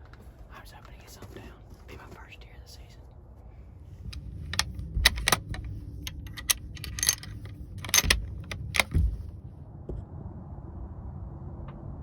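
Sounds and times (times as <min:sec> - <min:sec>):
sharp clicks and metallic rattles: 0:04.1 - 0:09.3
soft low thumps: 0:08.0 - 0:10.2.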